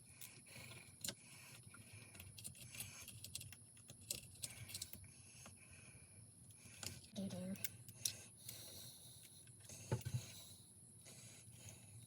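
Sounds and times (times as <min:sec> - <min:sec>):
small metal parts clicking and rattling: 0:00.2 - 0:05.0.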